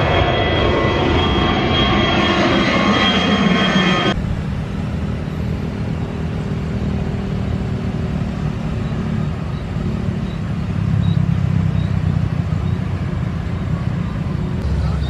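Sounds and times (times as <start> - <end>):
low steady rumble: 4.1 - 15.0.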